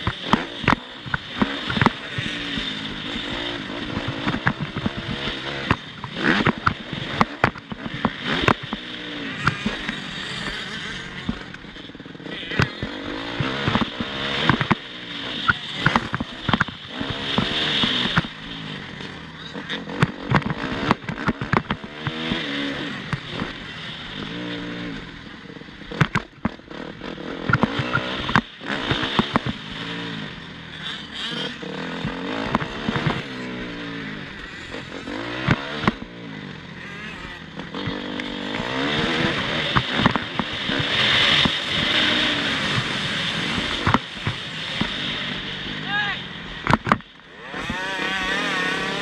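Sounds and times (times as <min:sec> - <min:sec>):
sharp knocks and clatters: 0:00.0 - 0:02.8, 0:15.8 - 0:18.4, 0:19.9 - 0:22.4, 0:46.6 - 0:47.1
motocross bike engine revving: 0:00.0 - 0:49.0.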